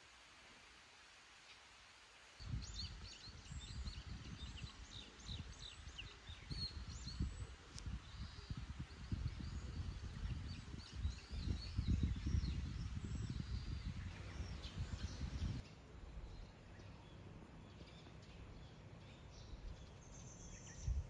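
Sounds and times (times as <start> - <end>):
wind buffeting the microphone: 2.4 - 15.6, 19.4 - 21.0
small birds chirping: 2.4 - 21.0.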